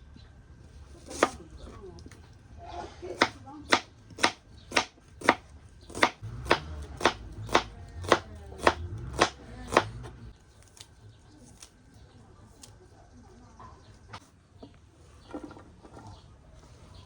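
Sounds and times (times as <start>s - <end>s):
knife chopping on cutting board: 1.0s - 1.4s, 3.2s - 10.2s.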